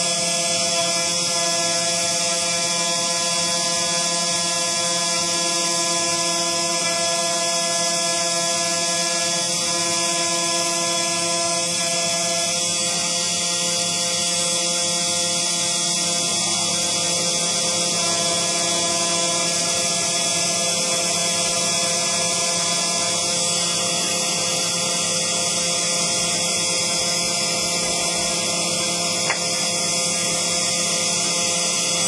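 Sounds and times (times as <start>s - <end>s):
engraving machine whine: 0.0s - 32.0s.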